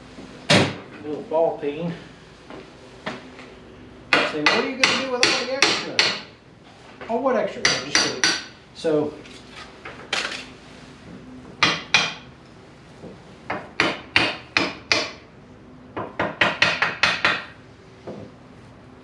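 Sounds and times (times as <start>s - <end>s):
hammer tapping on steel: 7.6s - 8.5s.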